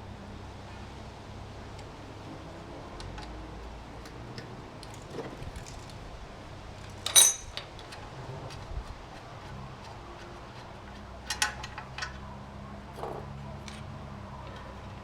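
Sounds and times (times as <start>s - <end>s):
metal tools clinking on metal: 7.0s - 7.7s.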